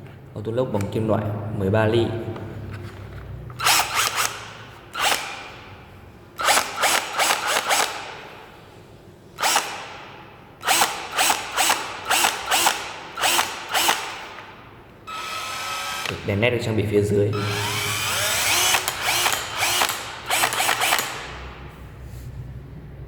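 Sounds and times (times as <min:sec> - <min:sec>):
drill chuck ratchet clicks: 0:03.6 - 0:04.4, 0:10.6 - 0:14.5, 0:15.1 - 0:16.2, 0:17.4 - 0:21.5.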